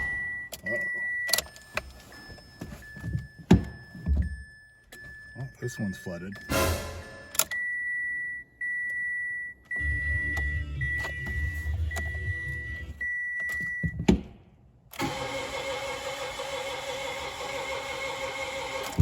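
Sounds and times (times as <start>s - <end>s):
high in-car warning chime: 0.0s - 14.0s
car starter cranking: 14.9s - 19.0s.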